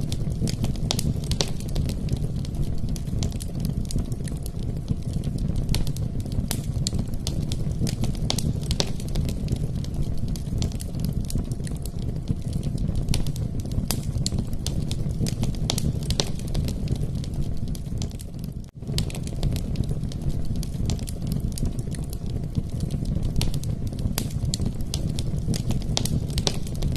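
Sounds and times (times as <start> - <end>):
logs crackling and popping: 0.0 - 26.9
low rumble of flames: 0.0 - 26.9.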